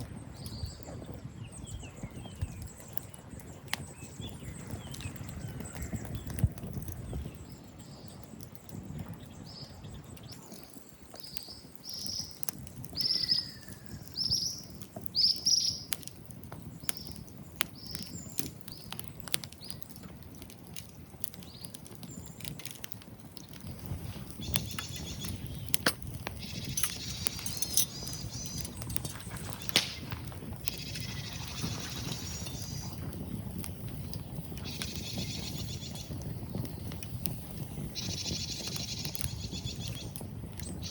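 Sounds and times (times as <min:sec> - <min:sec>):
wood fire crackling: 0:00.0 - 0:40.9
bird chirping: 0:09.3 - 0:15.9, 0:24.2 - 0:33.3.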